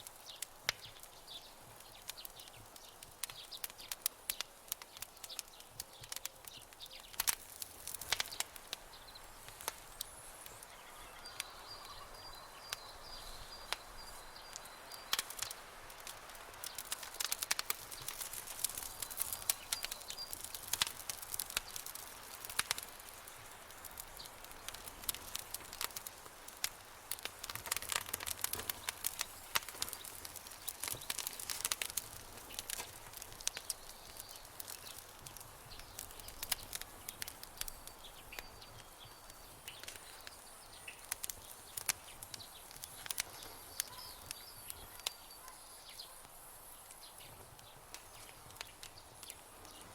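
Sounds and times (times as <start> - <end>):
campfire crackling: 0.0 - 49.9
faint high chirping: 9.0 - 15.5, 43.5 - 46.3.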